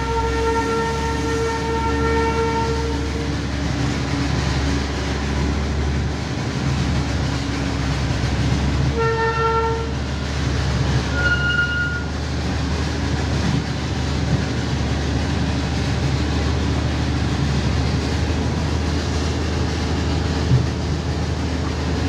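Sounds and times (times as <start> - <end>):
train horn blaring: 0.0 - 3.5, 8.8 - 10.1, 11.1 - 12.1
train engine and wheels rumbling: 0.0 - 22.0.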